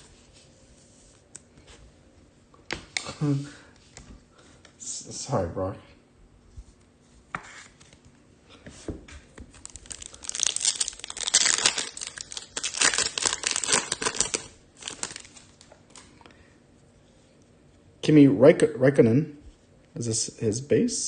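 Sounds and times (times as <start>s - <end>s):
foil wrapper tearing and crinkling: 9.5s - 15.7s.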